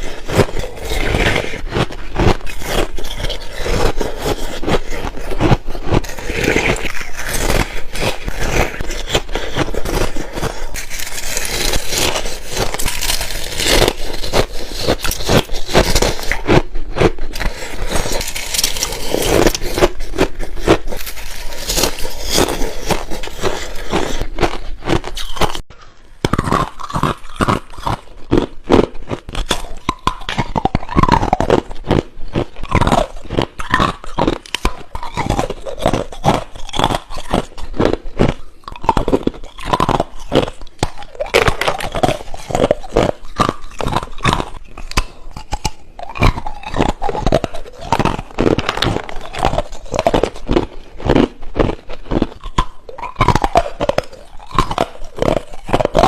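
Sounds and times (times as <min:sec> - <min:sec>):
ice being crunched: 0:00.0 - 0:25.6, 0:46.0 - 0:56.0.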